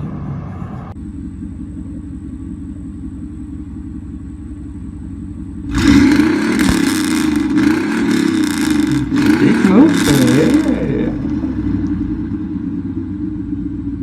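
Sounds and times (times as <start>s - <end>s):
pickup truck engine rumble: 0.0s - 14.0s
engine revving: 5.7s - 12.0s.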